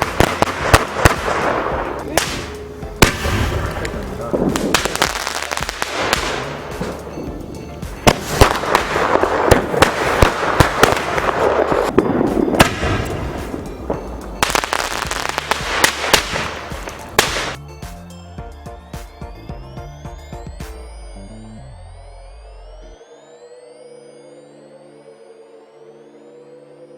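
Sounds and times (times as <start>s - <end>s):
firecracker bangs: 0.0s - 17.6s
firecracker crackling: 0.0s - 17.6s
electronic music: 0.0s - 26.9s.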